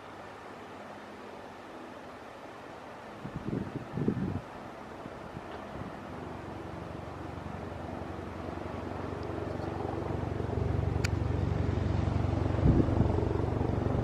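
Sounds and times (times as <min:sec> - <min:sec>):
helicopter rotor beating: 0:06.1 - 0:14.0.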